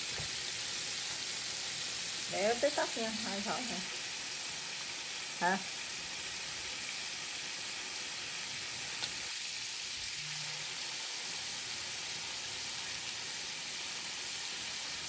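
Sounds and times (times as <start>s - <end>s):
chicken frying in hot oil: 0.0s - 15.0s.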